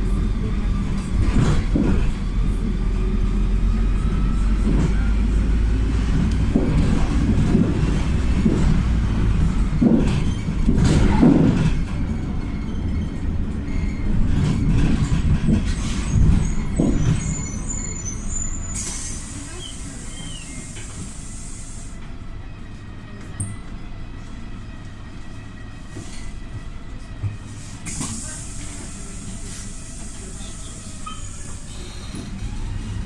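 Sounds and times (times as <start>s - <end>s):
bus engine running: 0.0s - 33.0s
road noise: 0.0s - 33.0s
hiss of compressed air: 27.8s - 30.4s.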